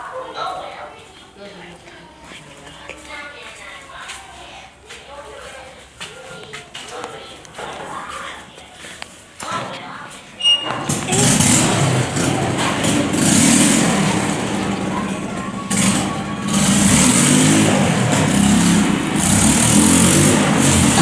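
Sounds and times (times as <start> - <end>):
car engine running loudly: 11.1 - 21.0.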